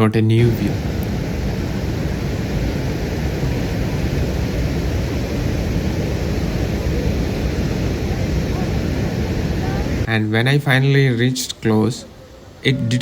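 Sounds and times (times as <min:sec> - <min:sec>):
waterfall roar: 0:00.4 - 0:10.1.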